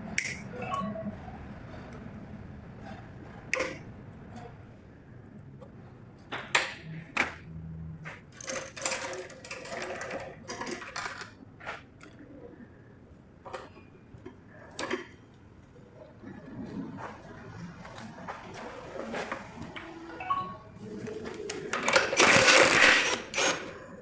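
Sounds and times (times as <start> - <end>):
tools clicking and scraping: 8.1 - 12.2, 20.8 - 24.0.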